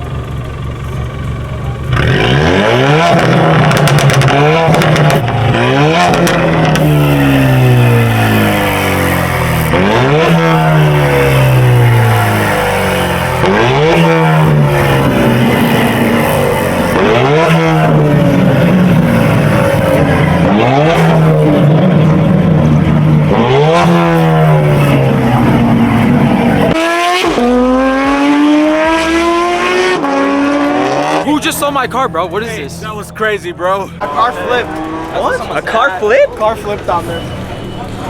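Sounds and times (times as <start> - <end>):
car engine revving through loud exhaust: 1.8 - 31.5.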